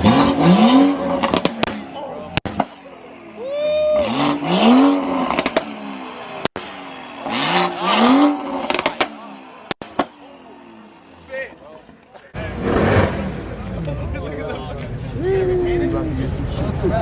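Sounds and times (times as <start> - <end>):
car engine revving hard: 0.0 - 3.4, 4.0 - 11.2, 12.4 - 13.8
exhaust pops: 1.1 - 2.8, 5.2 - 5.8, 8.6 - 10.2.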